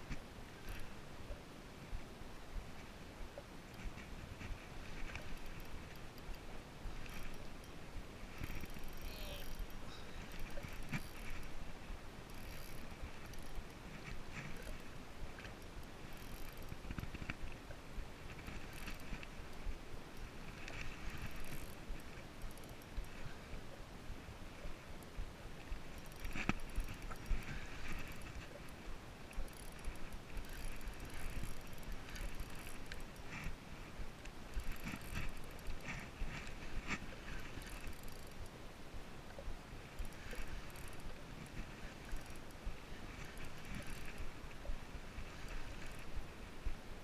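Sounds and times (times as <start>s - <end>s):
water lapping against kayak: 2.6s - 46.9s
fishing gear clicking and ratcheting: 4.9s - 11.6s, 12.2s - 17.5s, 18.3s - 23.2s, 25.6s - 33.6s, 34.5s - 38.5s, 39.9s - 44.6s, 45.2s - 46.2s.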